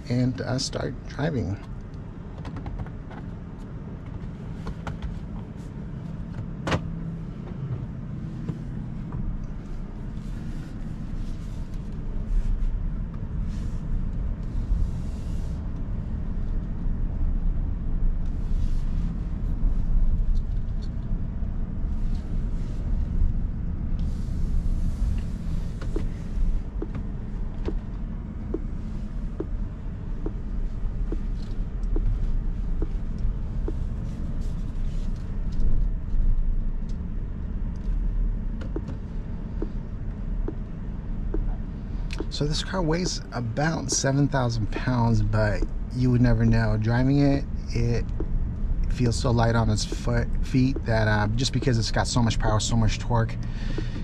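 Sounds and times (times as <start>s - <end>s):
road and tyre rumble: 0.0s - 54.0s.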